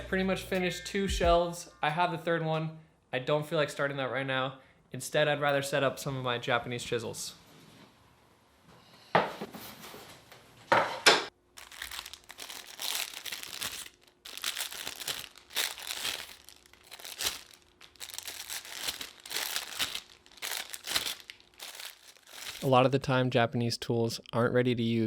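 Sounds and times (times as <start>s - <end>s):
wrapping crinkling and tearing: 11.5s - 22.7s.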